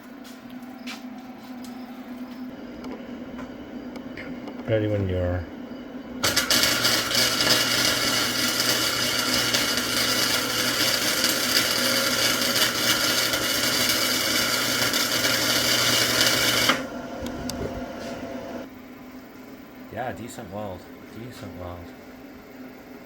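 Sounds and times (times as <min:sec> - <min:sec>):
low hum: 0:00.0 - 0:13.4, 0:16.8 - 0:19.8
welder arc crackling: 0:06.2 - 0:18.7.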